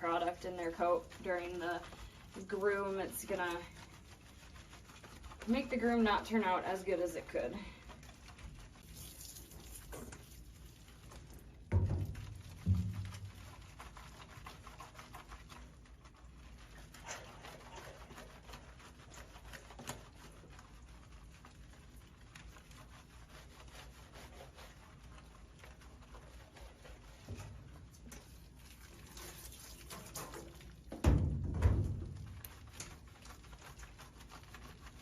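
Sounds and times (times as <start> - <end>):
hands rubbing wet fur: 0.0 - 35.0
dull thump: 11.7 - 13.4.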